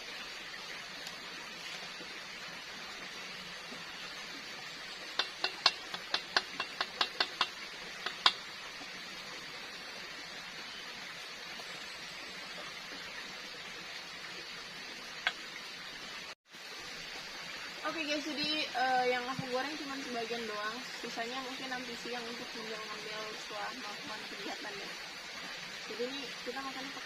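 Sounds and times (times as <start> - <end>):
steady hiss: 0.0 - 27.0
utensil clinking against frying pan: 5.2 - 8.4.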